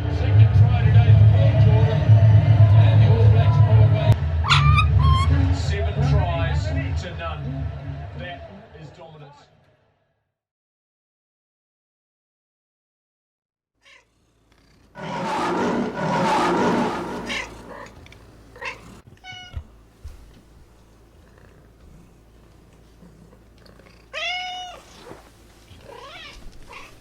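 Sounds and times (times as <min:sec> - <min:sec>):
harsh squawk: 0:04.4 - 0:05.4, 0:15.0 - 0:19.0.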